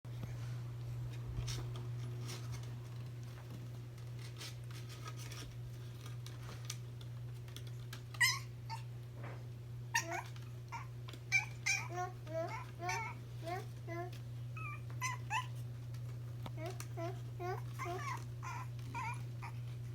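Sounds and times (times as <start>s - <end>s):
puppy whimpering: 8.1s - 8.9s, 9.9s - 15.7s, 16.6s - 19.9s.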